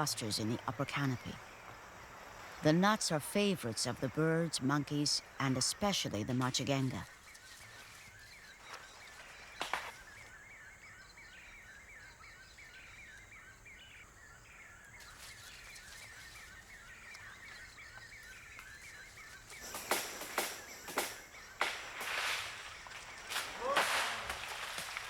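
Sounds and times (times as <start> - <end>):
sharp cracks and snaps: 9.5 - 10.3, 19.6 - 25.0.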